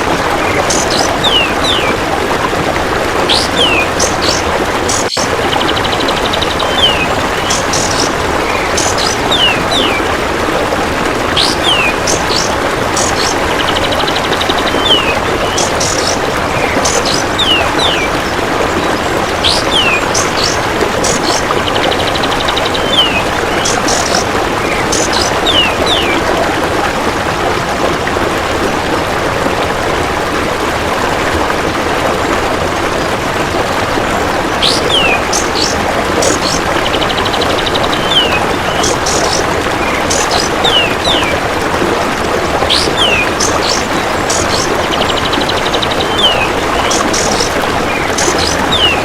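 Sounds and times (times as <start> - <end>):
running water: 0.0 - 49.0
bird calls and whistles: 0.4 - 2.0, 3.3 - 10.1, 11.4 - 26.2, 34.6 - 41.4, 42.7 - 49.0.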